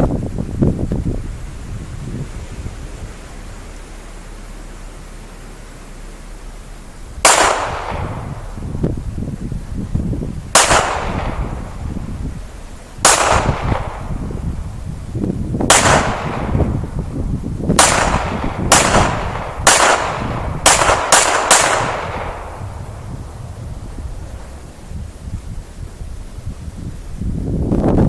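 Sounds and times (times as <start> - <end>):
wind rumbling on microphone: 0.0 - 28.0
pistol shots: 7.2 - 8.4, 10.5 - 11.6, 13.0 - 14.2, 15.7 - 16.8, 17.8 - 22.7.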